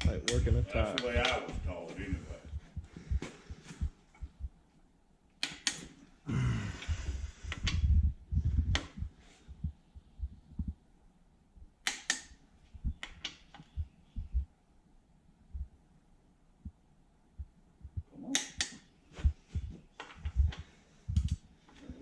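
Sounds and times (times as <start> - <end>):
sharp metal clicks: 5.4 - 5.8, 11.8 - 12.4.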